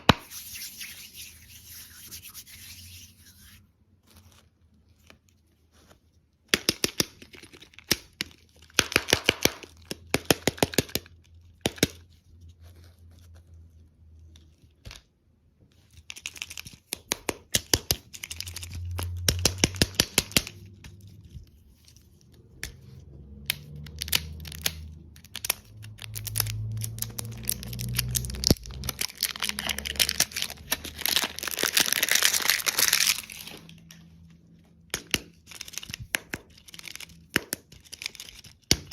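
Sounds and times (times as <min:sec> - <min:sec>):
plastic wrappers crinkling: 0:23.7 - 0:34.0, 0:35.3 - 0:38.7.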